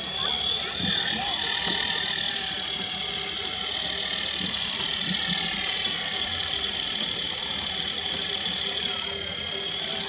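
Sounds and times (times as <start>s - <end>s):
rc helicopter motor whine: 0.0s - 10.0s
rotor whirring: 0.0s - 10.0s.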